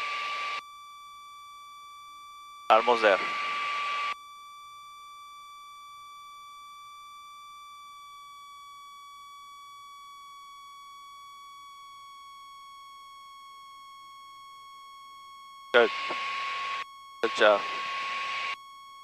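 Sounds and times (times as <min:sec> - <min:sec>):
high-pitched electronic whine: 0:02.7 - 0:05.6, 0:15.8 - 0:19.0.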